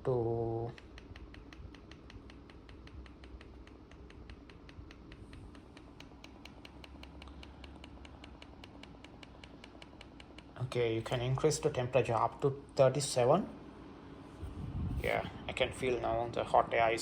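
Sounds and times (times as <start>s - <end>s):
fan hum: 0.0s - 17.0s
rapid even clicking: 0.7s - 10.7s.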